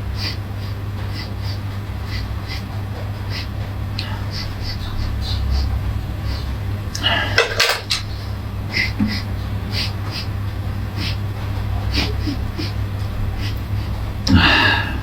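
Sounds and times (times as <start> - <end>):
steady low hum: 0.0 - 15.0
dishes clinking and rattling: 7.1 - 8.1.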